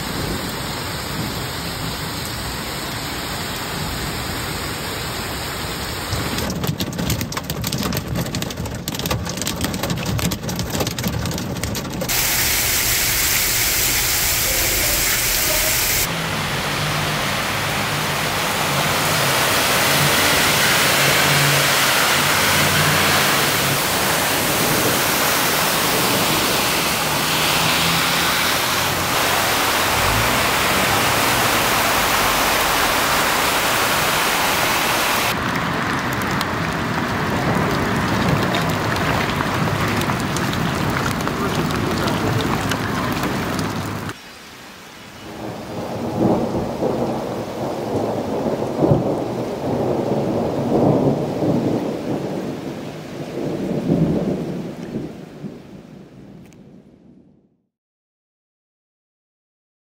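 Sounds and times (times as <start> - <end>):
tyres splashing through floodwater: 0.0 - 55.4
heavy rain: 0.0 - 56.6
vehicle engines running: 9.0 - 44.2.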